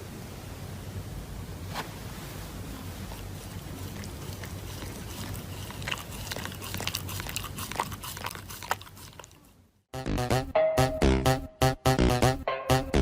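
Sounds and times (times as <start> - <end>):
background hiss: 0.0 - 5.8
dog chewing crunchily: 2.9 - 9.6.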